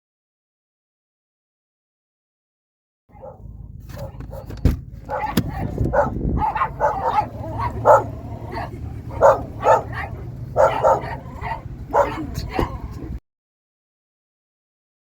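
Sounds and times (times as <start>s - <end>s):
dog barking and yipping: 3.1s - 13.1s
steady low hum: 3.1s - 13.2s.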